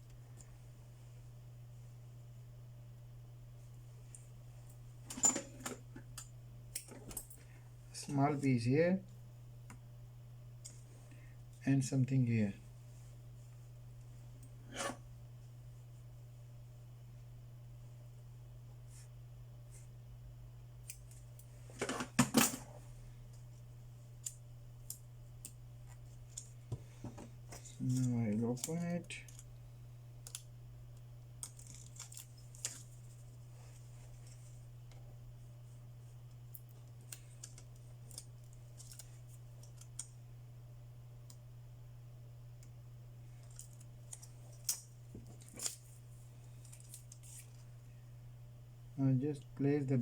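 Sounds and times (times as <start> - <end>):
steady low hum: 0.0 - 50.0
light clicks and taps of tools: 6.0 - 7.4, 24.2 - 29.6
crackling handling noise: 20.8 - 40.2, 42.6 - 47.7
small parts clicking and tapping: 27.1 - 29.6, 30.2 - 33.0, 36.3 - 40.2, 43.4 - 45.9.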